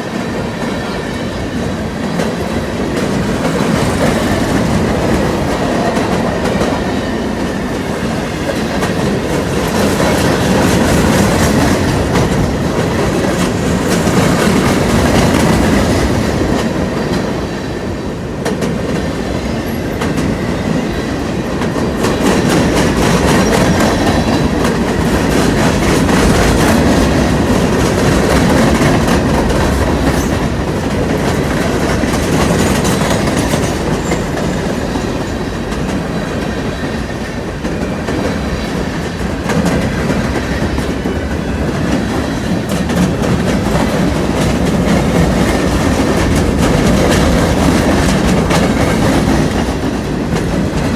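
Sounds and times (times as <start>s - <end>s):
freight train rolling past: 0.0s - 50.9s
wheels clacking over rail joints: 18.4s - 50.9s.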